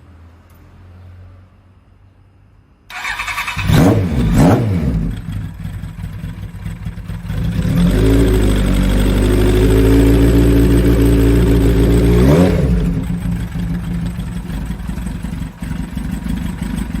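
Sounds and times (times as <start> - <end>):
vehicle engine running: 3.6 - 17.0.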